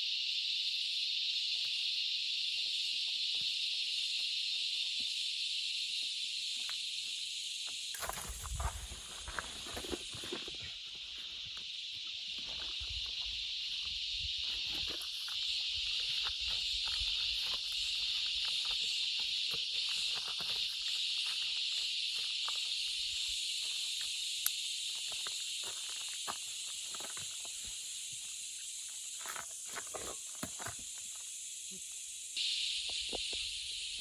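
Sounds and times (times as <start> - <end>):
high-pitched insect chorus: 0.0 - 34.0
footsteps on a bush track: 6.7 - 31.4.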